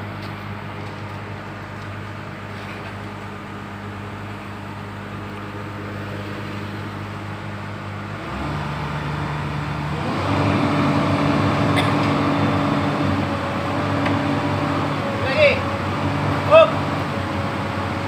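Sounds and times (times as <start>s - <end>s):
excavator diesel engine revving: 5.9s - 18.0s.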